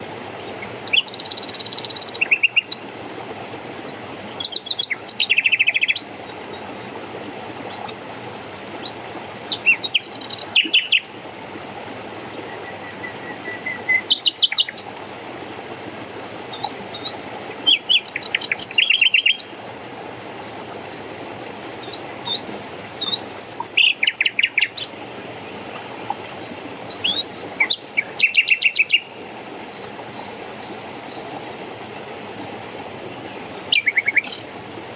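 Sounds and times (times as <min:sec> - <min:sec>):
songbird singing in trills: 0:00.0 - 0:07.0, 0:08.8 - 0:11.2, 0:12.5 - 0:14.8, 0:16.5 - 0:19.5, 0:21.8 - 0:24.9, 0:26.9 - 0:29.2, 0:32.3 - 0:34.6
rushing running water: 0:00.0 - 0:34.9.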